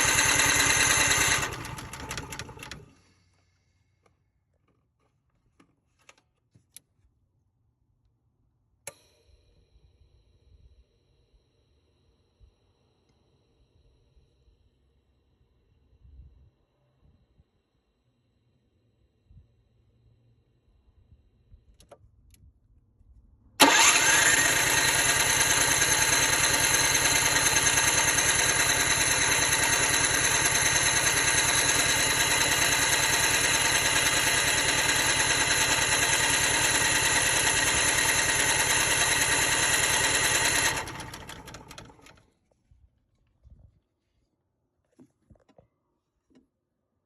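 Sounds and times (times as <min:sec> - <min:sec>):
generator starter cranking: 0:00.0 - 0:03.0, 0:23.6 - 0:42.2.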